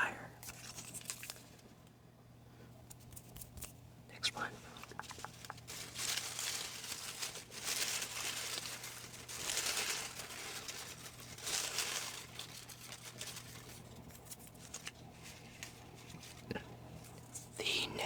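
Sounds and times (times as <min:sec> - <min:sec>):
paper slips rustling and crinkling: 0:04.9 - 0:16.4.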